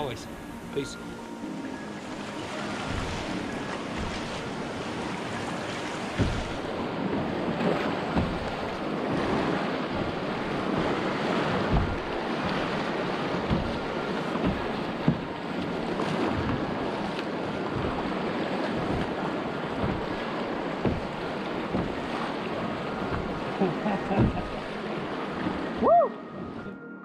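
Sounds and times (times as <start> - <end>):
river water rushing: 0.0 - 26.7
wind buffeting microphone: 2.4 - 26.6
low thumps: 2.7 - 5.4, 6.1 - 6.9, 8.1 - 8.8, 11.6 - 15.4, 17.7 - 18.2, 18.8 - 22.2, 22.9 - 24.6.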